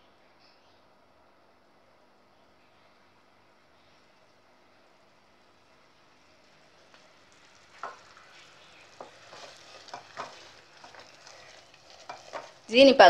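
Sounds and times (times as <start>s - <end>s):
syrup simmering with faint hiss: 0.2s - 13.0s
spoon knocking against pan: 7.8s - 8.0s, 9.0s - 11.1s.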